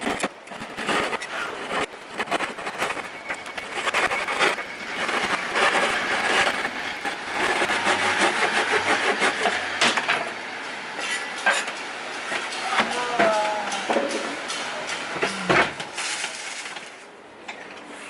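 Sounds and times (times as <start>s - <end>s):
wood rubbing and scraping: 0.0s - 8.0s.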